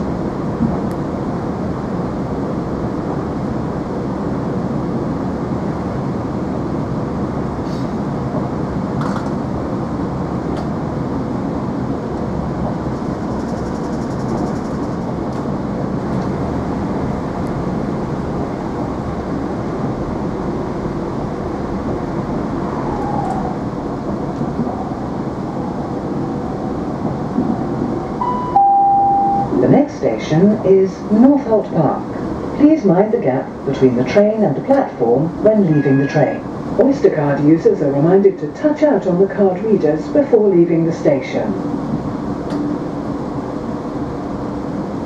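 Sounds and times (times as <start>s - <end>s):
train interior rumble: 0.0s - 45.0s
two-note falling chime: 28.2s - 29.5s.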